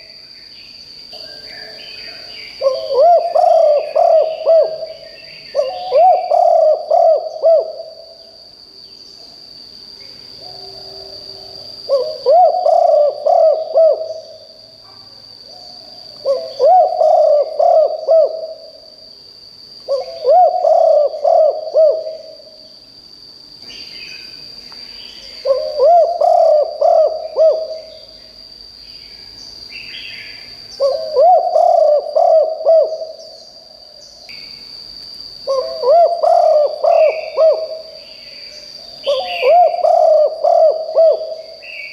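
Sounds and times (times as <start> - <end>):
steady high-pitched whine: 0.0 - 41.9
dove cooing: 1.6 - 8.2, 10.4 - 14.4, 16.2 - 18.8, 19.9 - 22.5, 25.4 - 28.0, 30.8 - 33.3, 35.4 - 38.0, 39.0 - 41.9.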